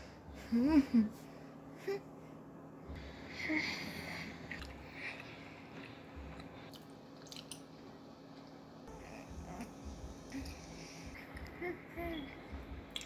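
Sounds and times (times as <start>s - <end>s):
wet chewing and munching: 4.3s - 7.8s.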